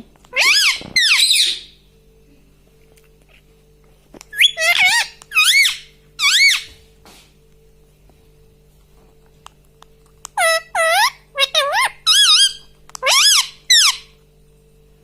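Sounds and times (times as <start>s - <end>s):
parakeet squawking: 0.3s - 1.7s, 4.3s - 6.7s, 10.4s - 14.1s.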